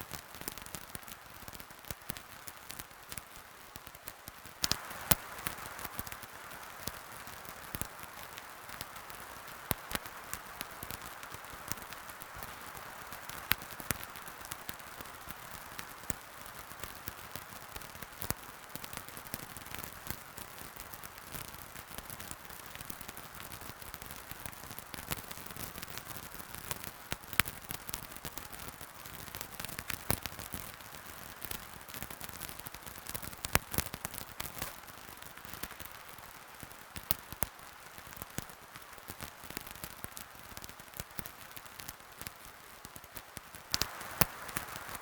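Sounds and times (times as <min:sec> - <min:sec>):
fire crackling and popping: 0:00.0 - 0:45.0
fire hissing: 0:43.7 - 0:45.0.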